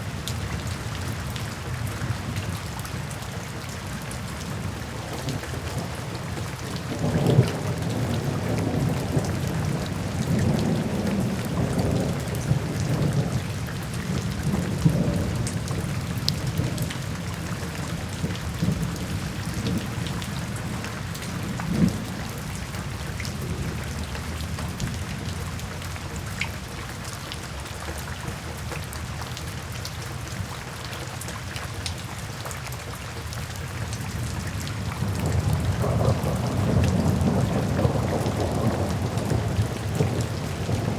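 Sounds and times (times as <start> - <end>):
heavy rain falling: 0.0 - 40.9
rolling thunder: 5.0 - 25.4, 34.8 - 40.9.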